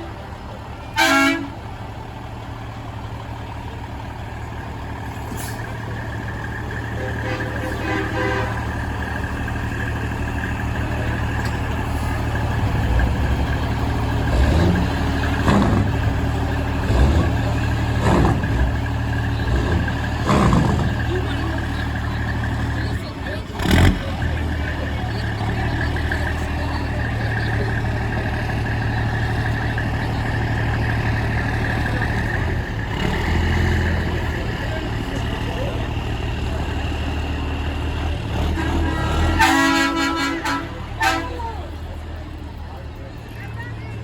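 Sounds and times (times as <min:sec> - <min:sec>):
truck diesel engines droning: 0:00.0 - 0:44.0
truck horn blast: 0:00.9 - 0:01.7, 0:06.8 - 0:09.0, 0:14.2 - 0:17.4, 0:38.3 - 0:41.8.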